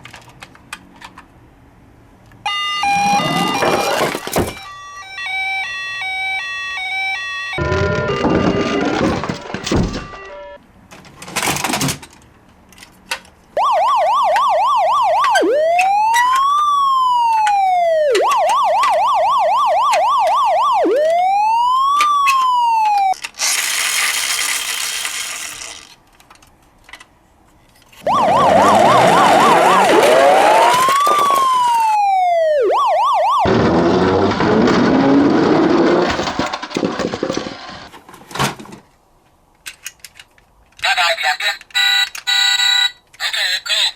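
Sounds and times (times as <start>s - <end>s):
electronic siren warbling and wailing: 2.5s - 9.0s, 13.6s - 23.2s, 28.0s - 35.8s.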